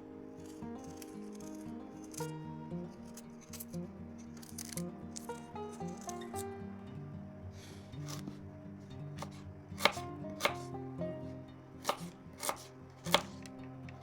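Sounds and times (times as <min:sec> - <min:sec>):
background music: 0:00.0 - 0:14.0
knife chopping on cutting board: 0:08.0 - 0:08.4, 0:09.2 - 0:10.7, 0:11.8 - 0:13.4.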